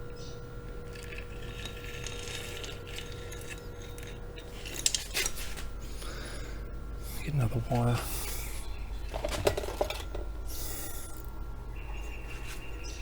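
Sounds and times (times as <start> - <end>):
light metal scraping: 0.2 - 6.0.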